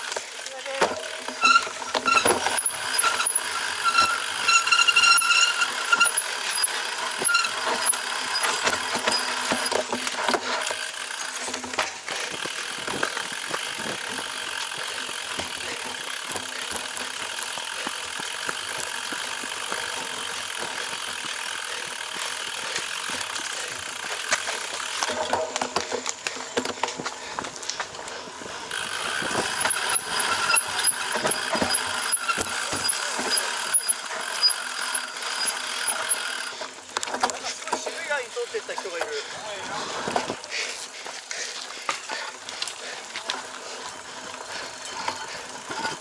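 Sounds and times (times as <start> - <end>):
bike rattling over rough ground: 0.0 - 46.0
wind and tyres rushing: 0.0 - 46.0
high pitched squeal: 1.4 - 8.5.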